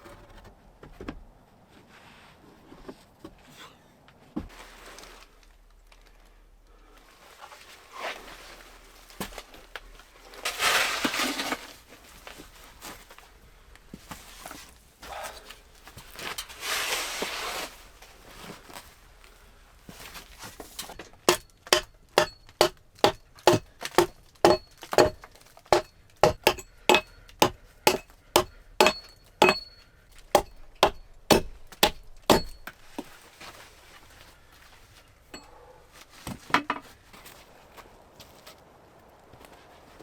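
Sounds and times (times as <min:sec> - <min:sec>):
sharp knocks with metallic ring: 0:21.2 - 0:25.2, 0:25.8 - 0:29.8, 0:30.4 - 0:32.7.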